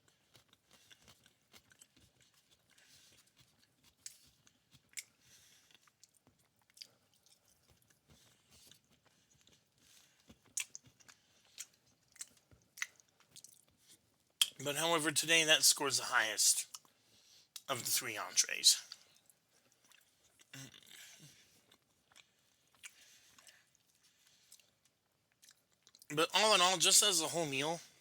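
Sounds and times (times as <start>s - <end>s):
person chewing food: 0.0s - 14.6s, 18.9s - 26.1s
wet mouth clicks and smacks: 10.4s - 13.7s.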